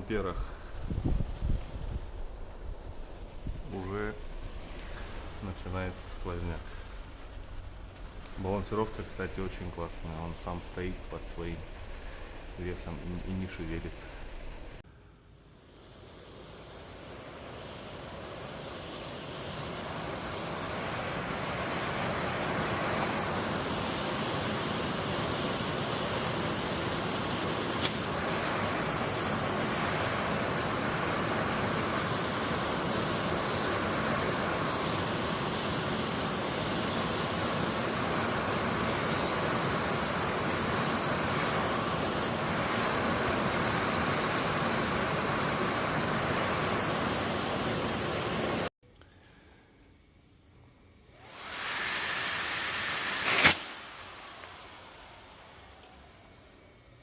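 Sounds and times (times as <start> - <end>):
heater blower fan running: 0.0 - 48.7, 51.0 - 57.0
sharp click: 53.2 - 53.7.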